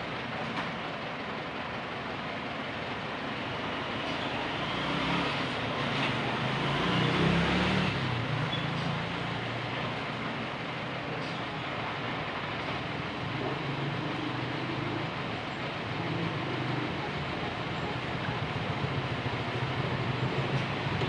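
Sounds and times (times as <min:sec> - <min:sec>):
steady noisy background: 0:00.0 - 0:06.9, 0:07.5 - 0:21.0
engine humming: 0:00.0 - 0:21.0.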